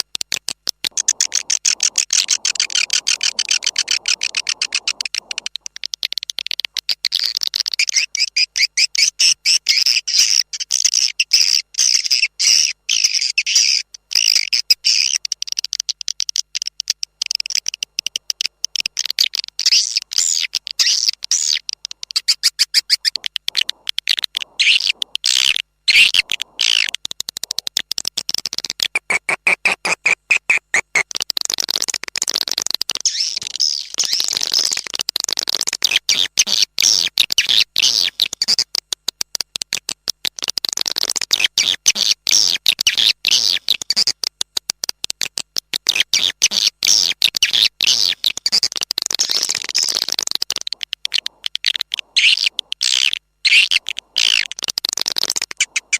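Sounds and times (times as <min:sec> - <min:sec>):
swiftlets chirping: 0:00.8 - 0:09.8, 0:13.0 - 0:27.9, 0:48.2 - 0:55.9.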